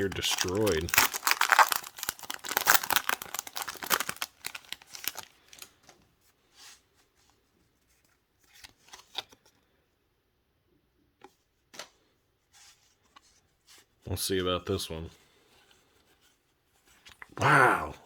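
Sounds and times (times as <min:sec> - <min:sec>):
foil wrapper crinkling and tearing: 0:00.0 - 0:05.7
cards rustling and clicking: 0:00.0 - 0:06.0, 0:08.0 - 0:09.5.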